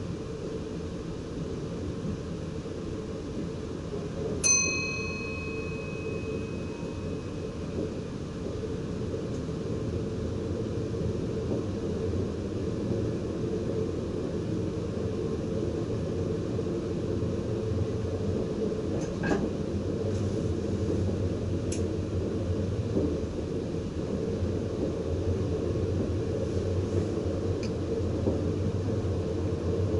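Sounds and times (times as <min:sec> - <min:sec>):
electric train running rumble: 0:00.0 - 0:29.9.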